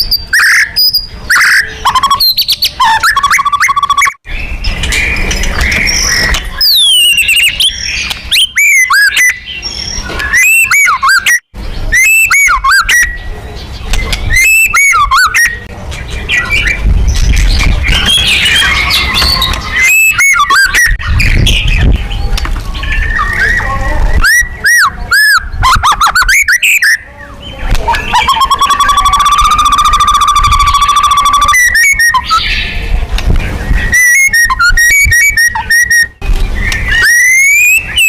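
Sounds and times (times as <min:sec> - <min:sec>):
bird singing whistled notes: 0:00.0 - 0:15.7, 0:16.3 - 0:32.8, 0:33.6 - 0:38.0.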